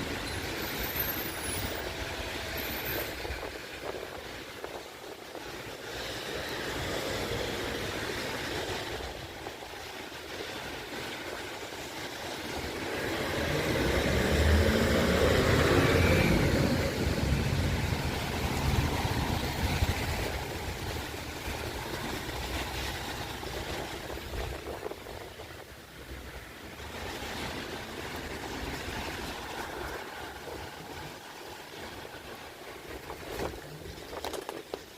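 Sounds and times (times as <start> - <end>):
tyre hiss on wet road: 0.0 - 33.8
outdoor noise: 0.0 - 34.9
vehicle driving past: 13.2 - 20.0.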